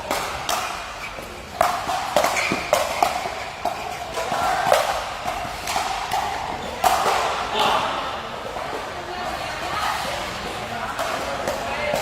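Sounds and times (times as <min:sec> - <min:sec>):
ball struck with rackets: 0:00.0 - 0:07.7.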